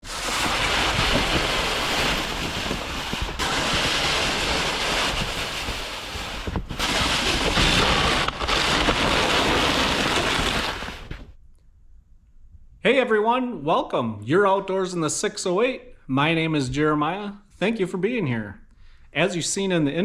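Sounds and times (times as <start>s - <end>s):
wind buffeting microphone: 0.6s - 8.1s.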